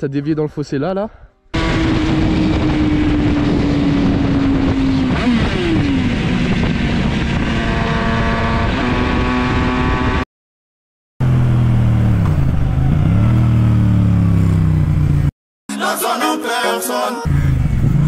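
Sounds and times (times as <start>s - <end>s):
wind rush over microphone: 1.6s - 10.0s
motorcycle engine cruising: 1.6s - 10.2s, 11.2s - 15.3s, 17.3s - 18.0s.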